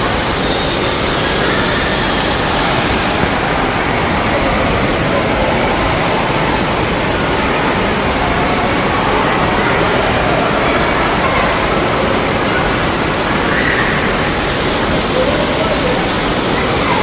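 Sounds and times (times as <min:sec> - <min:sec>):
falling and splashing water: 0:00.0 - 0:17.0.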